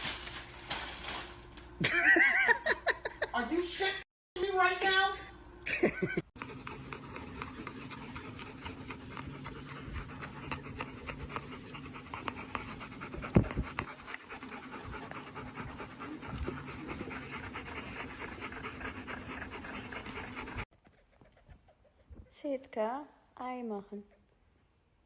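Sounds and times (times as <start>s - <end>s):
dog panting: 6.0s - 22.6s.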